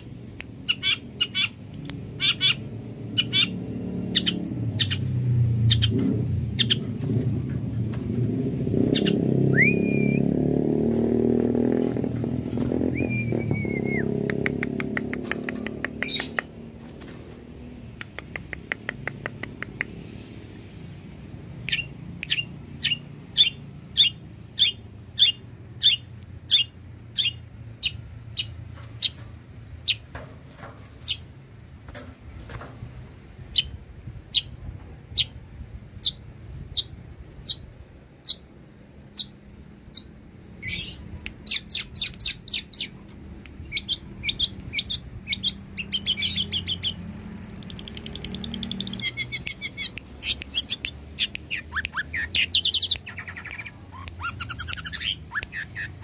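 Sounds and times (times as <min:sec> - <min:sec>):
bird chattering: 0:00.6 - 0:06.8, 0:08.8 - 0:09.2, 0:21.7 - 0:29.2, 0:39.1 - 0:43.0, 0:43.6 - 0:56.0
bird singing sharp high notes: 0:12.8 - 0:14.2.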